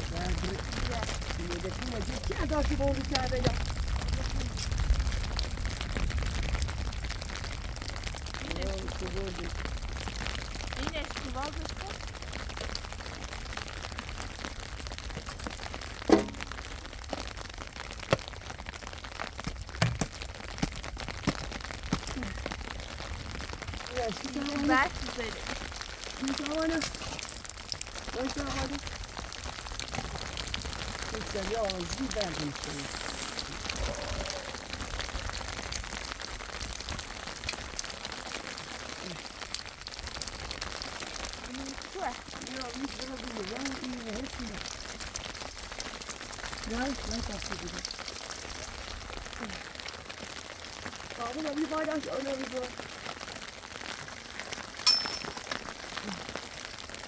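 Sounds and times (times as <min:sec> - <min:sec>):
steady rain falling: 0:00.0 - 0:57.0
sharp cracks and knocks: 0:16.0 - 0:17.3, 0:19.4 - 0:22.2.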